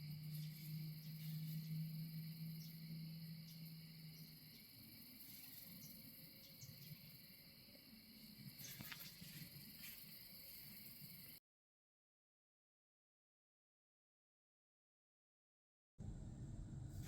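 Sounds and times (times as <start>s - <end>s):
low hum: 0.0s - 5.2s, 16.0s - 17.0s
crickets and insects chirping: 0.0s - 11.4s.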